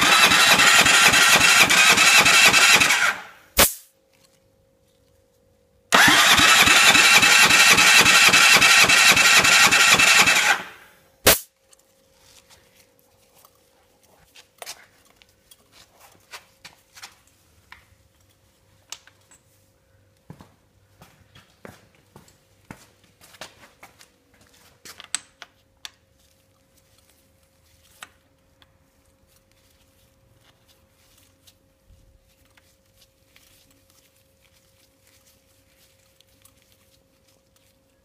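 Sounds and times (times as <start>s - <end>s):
engine cranking without starting: 0.0s - 3.4s, 5.9s - 10.9s.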